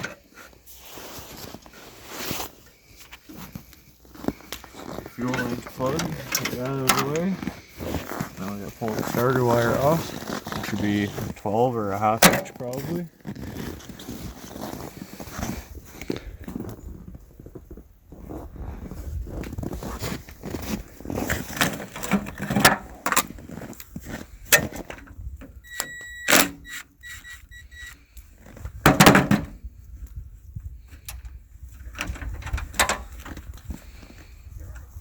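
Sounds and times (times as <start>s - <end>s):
short squeak: 25.6s - 28.0s.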